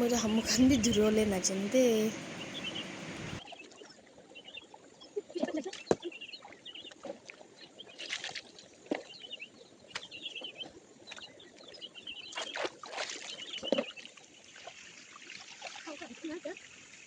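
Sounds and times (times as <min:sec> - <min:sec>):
faint chirps: 0:00.0 - 0:03.7
water splashing in a stream: 0:02.4 - 0:11.3, 0:12.2 - 0:17.0.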